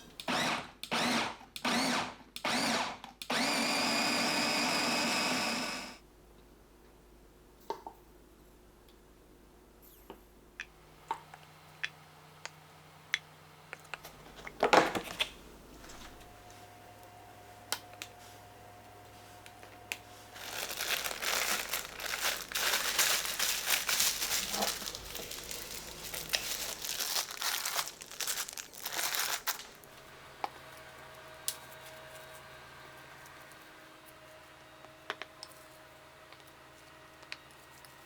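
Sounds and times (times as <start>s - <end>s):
plastic packaging crinkling: 19.8s - 30.0s.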